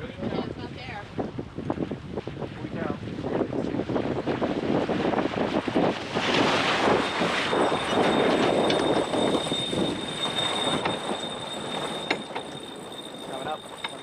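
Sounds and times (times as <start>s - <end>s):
water rushing along hull: 0.0s - 14.0s
wind buffeting microphone: 0.0s - 14.0s
faint steady high tone: 6.9s - 14.0s.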